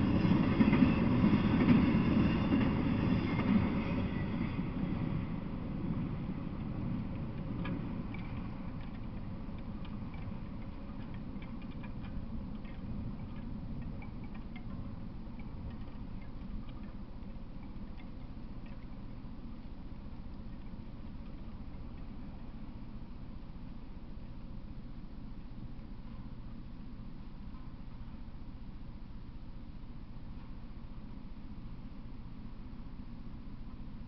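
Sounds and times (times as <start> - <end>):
freight train rumble: 0.0 - 34.0
faint irregular ticks and clicks: 5.9 - 32.5.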